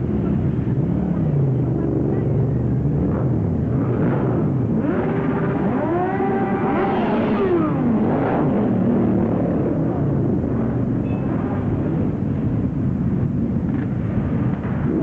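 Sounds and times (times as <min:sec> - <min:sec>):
motorcycles rumbling: 0:00.0 - 0:15.0
motorcycle engine revving: 0:03.1 - 0:10.8.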